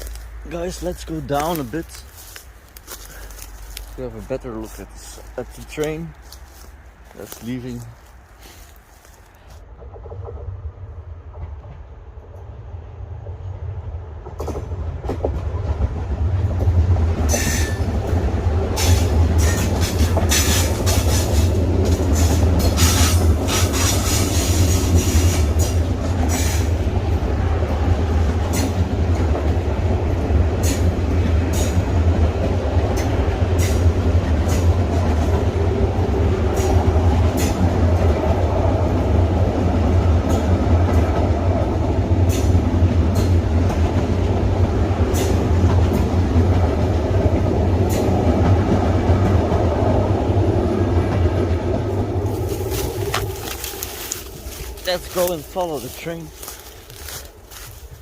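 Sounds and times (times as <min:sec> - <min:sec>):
train rumble: 0:00.0 - 0:58.0
train wheels clanking on rails: 0:14.2 - 0:26.8, 0:28.1 - 0:35.7, 0:36.4 - 0:38.5, 0:39.9 - 0:49.8.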